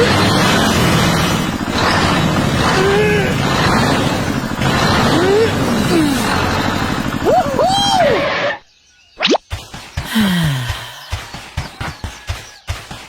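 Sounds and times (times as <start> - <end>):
small tractor motor chugging: 0.0 - 8.5.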